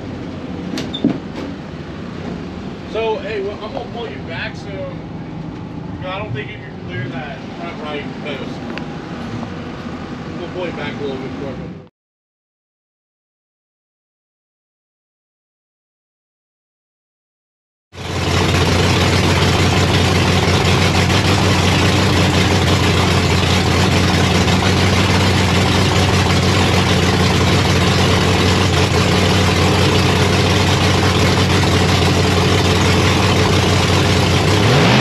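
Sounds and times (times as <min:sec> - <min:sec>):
car engine idling: 0:18.0 - 0:35.0.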